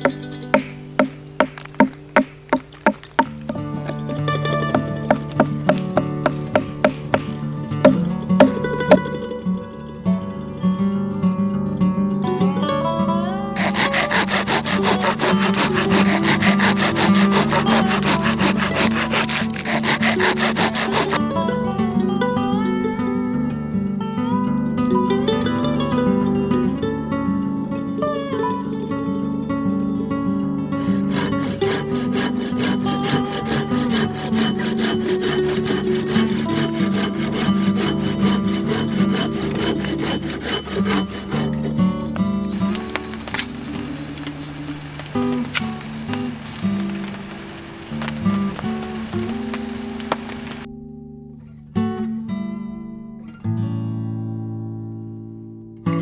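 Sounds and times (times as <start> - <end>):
handsaw cutting through wood: 0.0 - 9.0, 13.6 - 21.2, 30.8 - 50.7.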